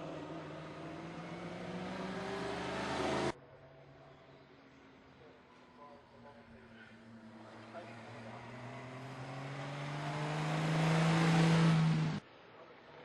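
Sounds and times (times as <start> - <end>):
racing car engine accelerating: 0.0 - 3.4, 6.9 - 12.2.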